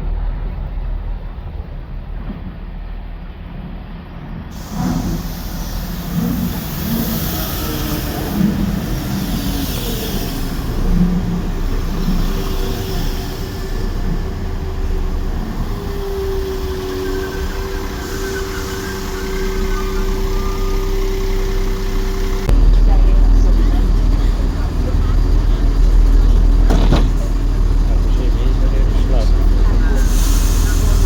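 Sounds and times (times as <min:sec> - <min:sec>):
train rumble: 0:00.0 - 0:31.0
hiss: 0:04.5 - 0:22.5, 0:28.8 - 0:31.0.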